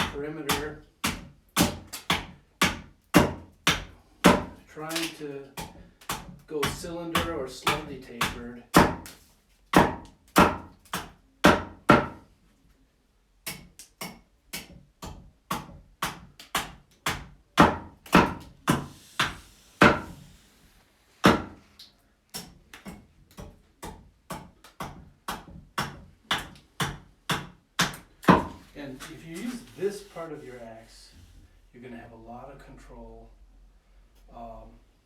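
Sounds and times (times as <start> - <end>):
axe chopping wood: 0.0 - 12.2, 13.5 - 20.2, 21.2 - 21.6, 22.4 - 28.6.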